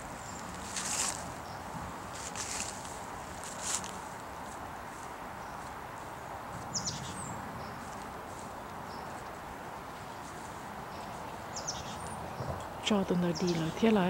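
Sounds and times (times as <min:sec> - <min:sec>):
background hiss: 0:00.0 - 0:14.0
bird chirping: 0:06.6 - 0:07.9, 0:08.8 - 0:14.0.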